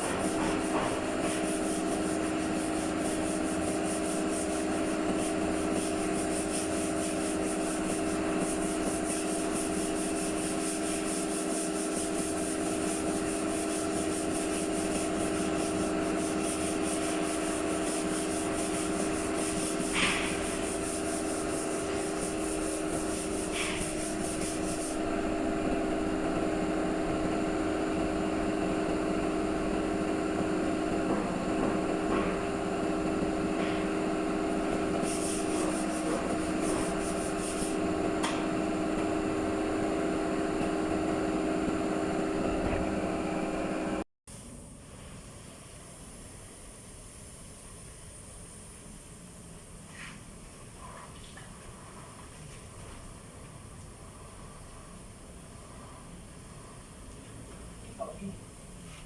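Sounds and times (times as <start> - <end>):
sander rasping on metal: 0.0 - 25.2, 34.4 - 38.0.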